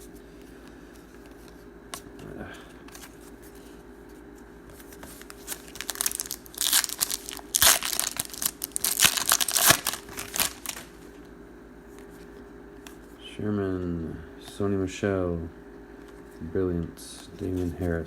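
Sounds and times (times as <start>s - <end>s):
plastic wrapper tearing and crinkling: 5.1s - 11.0s.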